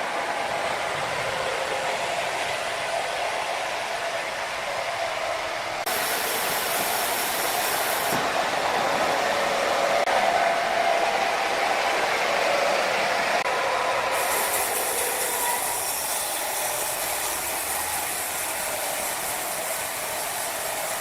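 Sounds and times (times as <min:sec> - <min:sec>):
sawmill machinery whirring: 0:00.0 - 0:21.0.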